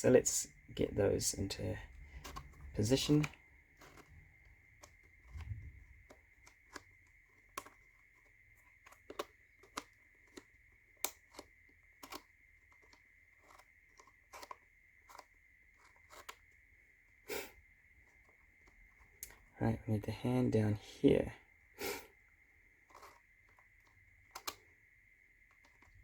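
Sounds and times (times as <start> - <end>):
faint high whine: 0.0 - 26.0
wooden tiles clicking and knocking: 1.9 - 16.5, 22.8 - 24.7.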